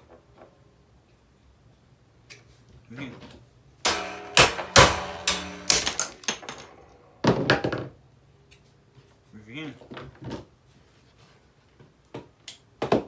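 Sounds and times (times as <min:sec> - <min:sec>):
hammer striking metal fan: 0:03.9 - 0:06.9.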